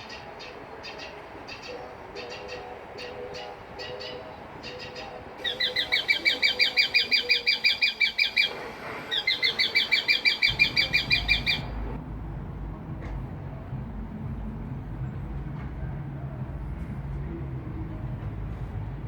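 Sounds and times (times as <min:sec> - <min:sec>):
bird chirping rapidly: 0:00.0 - 0:12.0
low rumble: 0:10.5 - 0:19.0.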